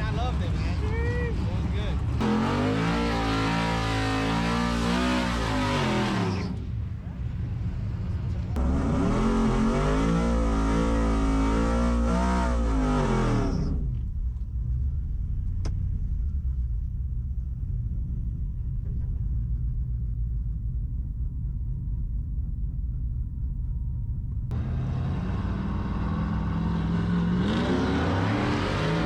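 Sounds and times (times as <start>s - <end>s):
truck engine revving hard: 2.2s - 6.6s, 8.6s - 13.8s, 24.5s - 29.0s
low steady rumble: 3.3s - 27.8s.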